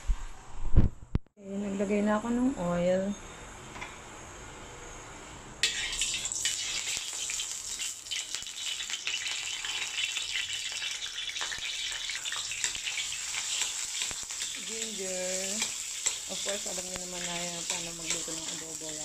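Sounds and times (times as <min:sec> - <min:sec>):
oil sizzling and crackling: 0:05.6 - 0:19.0.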